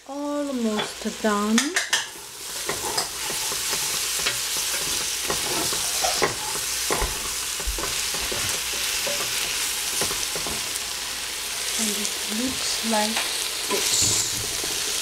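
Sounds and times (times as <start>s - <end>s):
food sizzling in a pot: 0.0s - 15.0s
wooden spatula scraping a pot: 1.8s - 10.8s.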